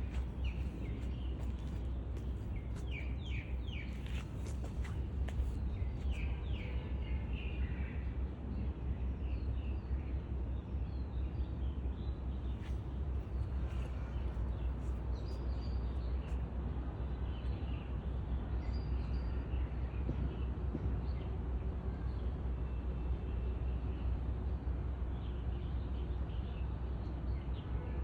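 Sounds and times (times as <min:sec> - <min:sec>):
small birds chirping: 0:00.0 - 0:06.7
steady low rumble: 0:00.0 - 0:07.6.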